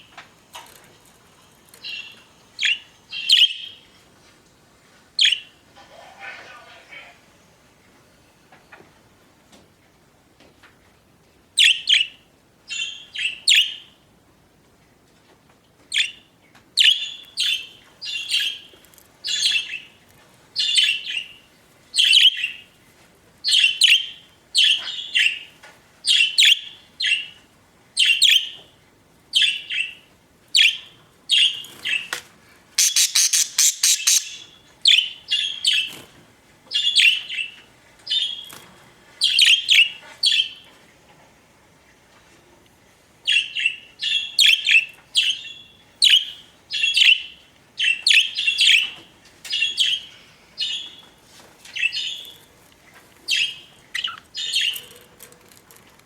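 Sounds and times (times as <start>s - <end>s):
budgerigars chirping: 1.8s - 3.8s, 32.8s - 36.0s, 43.3s - 51.0s, 53.3s - 54.8s.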